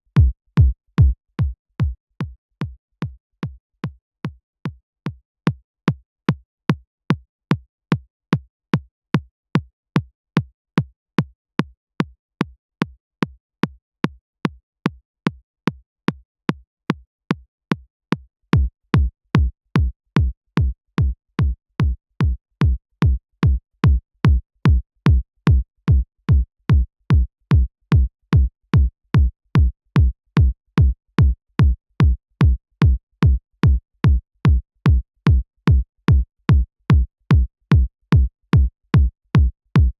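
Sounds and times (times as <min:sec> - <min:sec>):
electronic kick drum: 0:00.0 - 0:04.0, 0:18.6 - 0:39.9.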